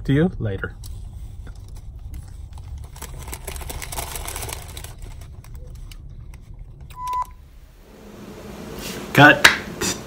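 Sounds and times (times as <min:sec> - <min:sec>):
low steady rumble: 0:00.0 - 0:08.8.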